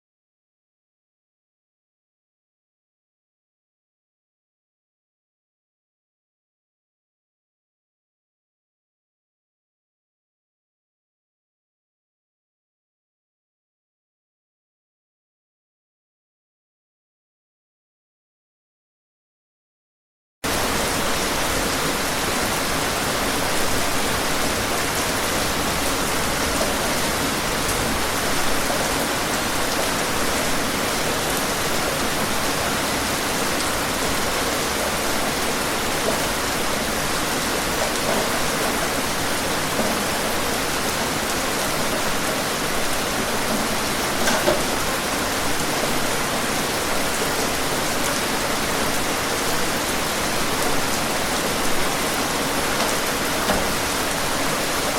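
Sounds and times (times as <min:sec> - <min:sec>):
heavy rain hissing: 0:20.5 - 0:54.9.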